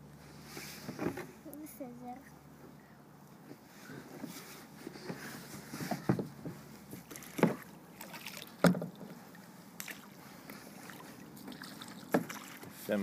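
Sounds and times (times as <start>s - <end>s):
kayak paddle splashing: 6.8s - 13.0s.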